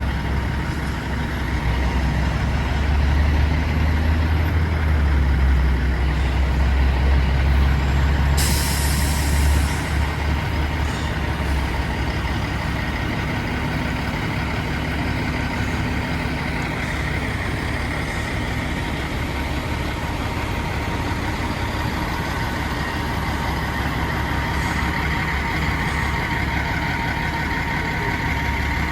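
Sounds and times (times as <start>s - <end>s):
diesel engine rumbling: 0.0s - 28.9s
air brakes hissing: 8.1s - 10.1s.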